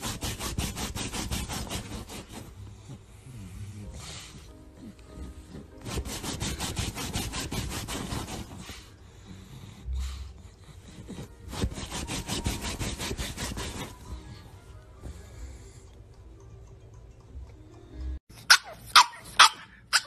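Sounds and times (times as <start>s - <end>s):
dog scratching fabric cushions: 0.0s - 2.6s, 5.5s - 8.9s, 11.1s - 14.2s.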